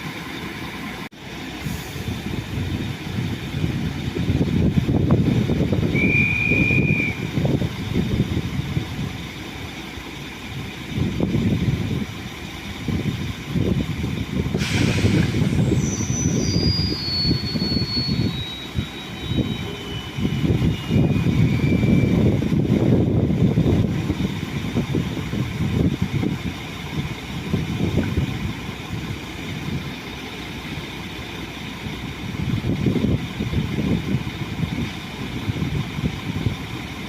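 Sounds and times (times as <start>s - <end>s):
electric train rumbling: 0.0s - 37.0s
sudden hiss: 14.6s - 17.6s
whining tones stepping down: 14.7s - 22.7s.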